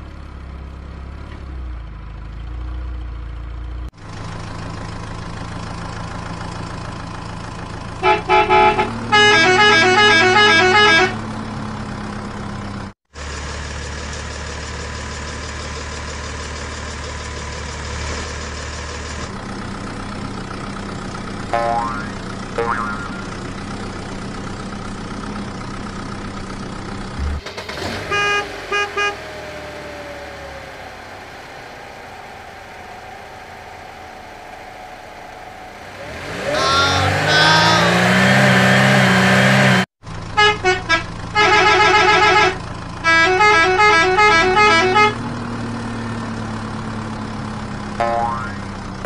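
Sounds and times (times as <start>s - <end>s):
gliding siren-like tones: 29.5s - 38.1s.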